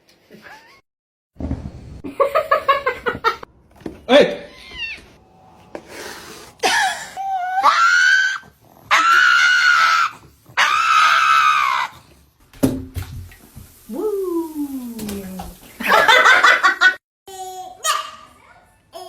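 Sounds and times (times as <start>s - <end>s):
high-pitched screams: 6.8s - 12.0s.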